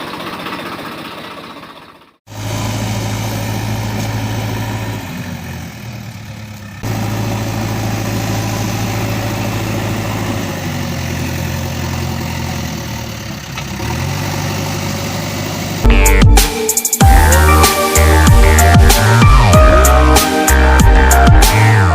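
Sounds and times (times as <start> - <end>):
loud electronic music: 15.8 - 21.9.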